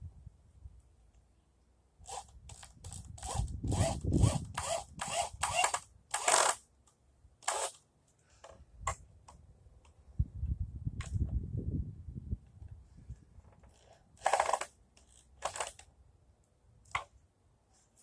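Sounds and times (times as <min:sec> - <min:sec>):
hand saw cutting wood: 0:02.1 - 0:06.6, 0:07.4 - 0:07.8.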